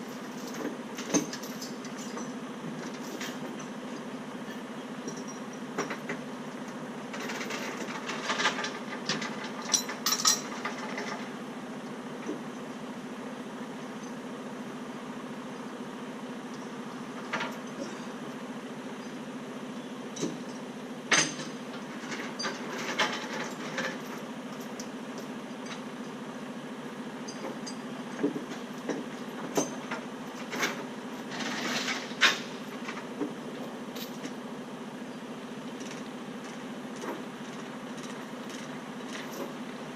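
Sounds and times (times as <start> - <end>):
metal clanks and rattles: 7.1 - 11.4, 20.2 - 25.9, 27.3 - 34.4.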